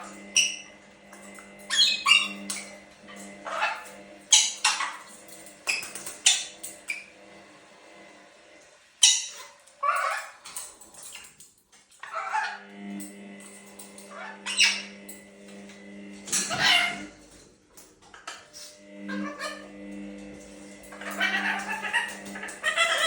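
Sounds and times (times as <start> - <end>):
lorikeets screeching: 1.7 - 2.8, 3.4 - 7.1, 9.0 - 10.4, 14.1 - 14.9, 16.4 - 17.1, 20.9 - 23.0.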